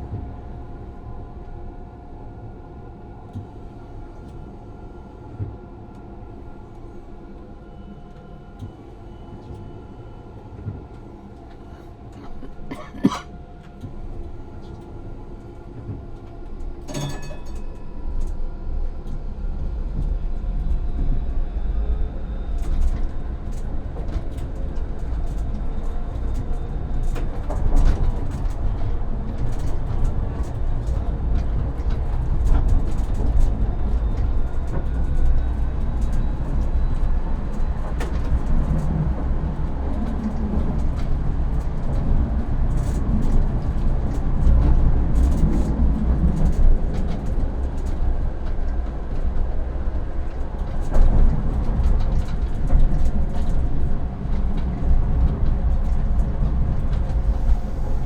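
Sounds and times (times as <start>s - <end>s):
tram electrical hum: 0.0s - 58.0s
tram wheels clattering on rails: 15.5s - 58.0s.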